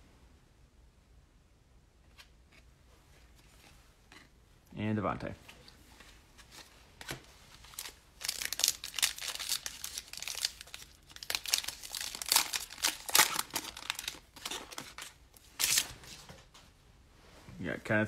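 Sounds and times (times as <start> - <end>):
card pack wrapper crinkling and tearing: 6.5 - 16.2.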